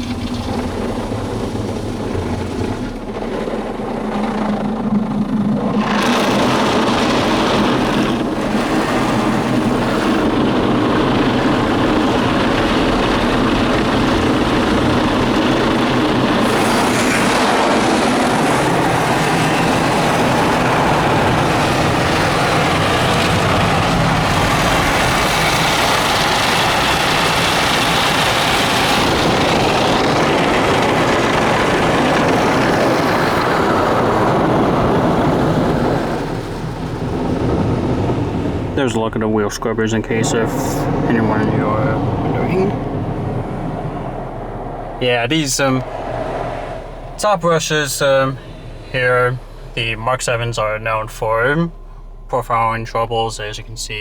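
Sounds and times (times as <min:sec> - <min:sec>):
car wash brushes scrubbing: 0:00.0 - 0:38.9
water spray: 0:16.4 - 0:18.6.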